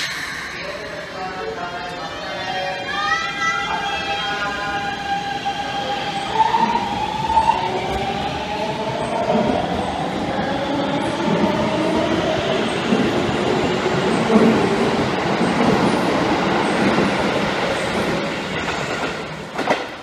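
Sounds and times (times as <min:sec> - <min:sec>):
train wheel rumble and rattle: 0:03.8 - 0:20.0.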